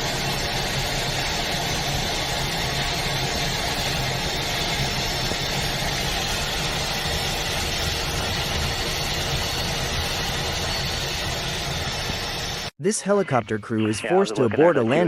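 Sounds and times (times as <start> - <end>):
jet engine running: 0.0 - 12.8.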